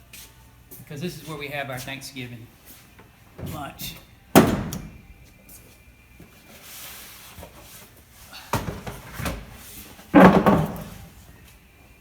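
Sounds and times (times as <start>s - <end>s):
knocks and thumps of box handling: 8.6s - 9.5s, 10.1s - 11.2s.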